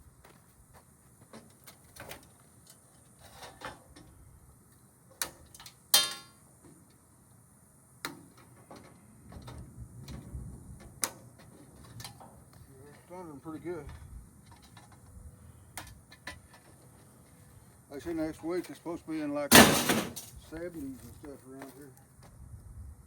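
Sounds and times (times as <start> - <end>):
loud ringing metal clank: 19.5 - 20.3.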